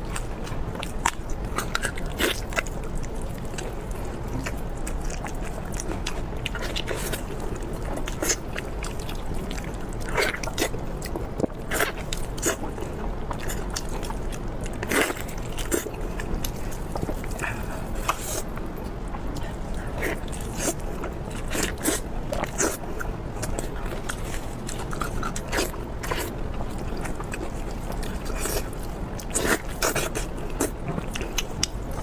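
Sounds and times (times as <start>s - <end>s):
crisp crunching and chewing: 0.0s - 32.0s.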